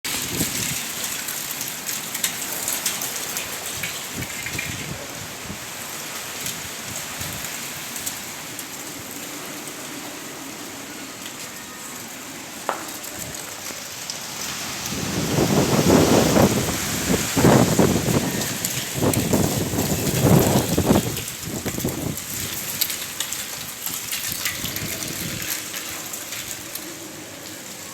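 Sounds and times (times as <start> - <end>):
wind gusts buffeting microphone: 3.6 - 10.6, 14.3 - 27.4
strong wind hissing: 14.4 - 22.6.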